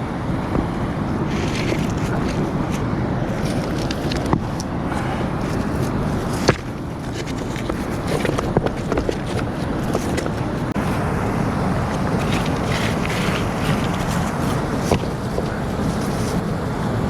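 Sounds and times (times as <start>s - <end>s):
fast-flowing river rushing: 9.6s - 17.0s.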